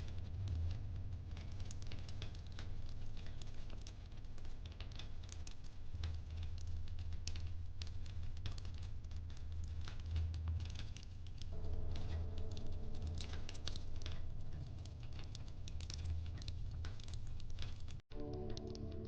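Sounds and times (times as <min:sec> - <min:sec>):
wood fire crackling: 0:00.0 - 0:19.0
low steady hum: 0:11.5 - 0:17.6.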